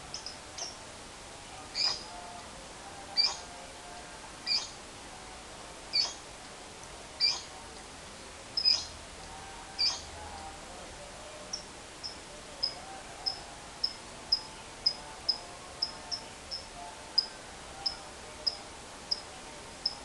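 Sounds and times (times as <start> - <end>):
faint steady hiss: 0.0 - 20.0
lovebird chirping: 0.1 - 0.8, 1.7 - 2.1, 3.2 - 3.4, 4.4 - 4.8, 5.9 - 6.2, 7.2 - 7.5, 8.6 - 8.9, 9.8 - 10.1.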